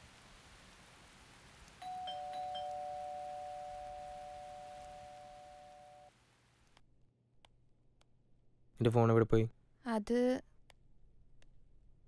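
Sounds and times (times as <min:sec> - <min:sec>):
faint steady hiss: 0:00.0 - 0:06.8
two-tone doorbell chime: 0:01.8 - 0:06.1.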